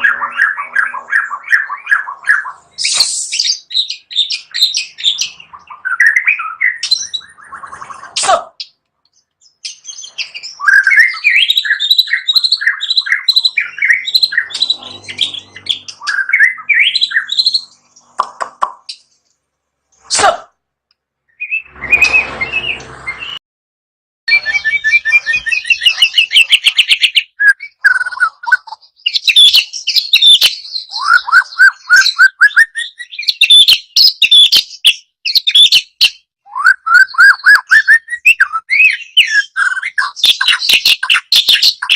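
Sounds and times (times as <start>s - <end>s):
bird singing whistled phrases: 0.0s - 8.8s, 9.4s - 17.8s, 21.3s - 23.4s, 24.3s - 41.9s
brief noisy burst: 21.6s - 23.4s.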